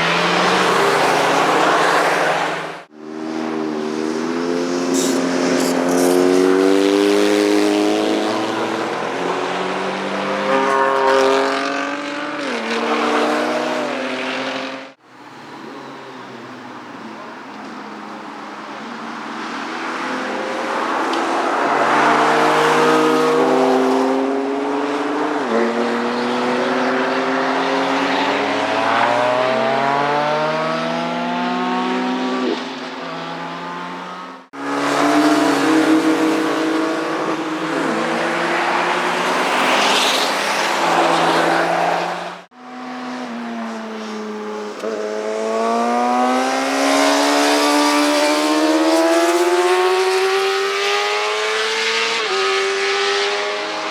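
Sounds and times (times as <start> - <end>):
motorcycles accelerating past: 42.7 - 53.9.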